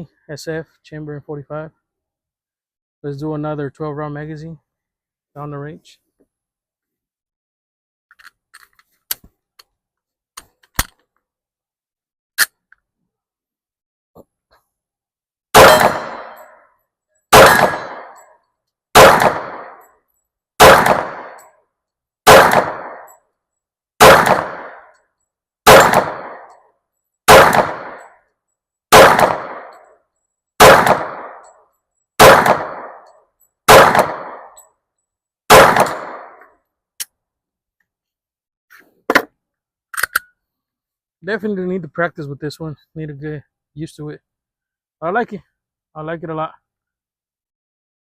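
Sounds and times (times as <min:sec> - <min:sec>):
pistol shots with echo: 0:15.6 - 0:16.6, 0:17.3 - 0:18.2, 0:18.9 - 0:19.8, 0:20.6 - 0:21.4, 0:22.2 - 0:23.1, 0:24.0 - 0:24.9, 0:25.6 - 0:26.5, 0:27.3 - 0:28.1, 0:28.9 - 0:29.8, 0:30.6 - 0:31.5, 0:32.2 - 0:33.0, 0:33.7 - 0:34.5, 0:35.5 - 0:36.4.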